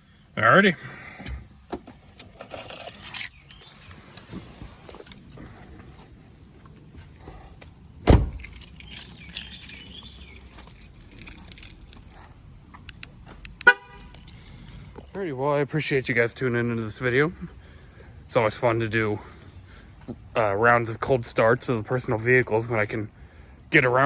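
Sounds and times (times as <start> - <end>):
light rattling: 1.2 - 6.0, 8.4 - 12.5, 14.0 - 15.4
car keys jingling: 1.4 - 6.1, 8.4 - 15.4.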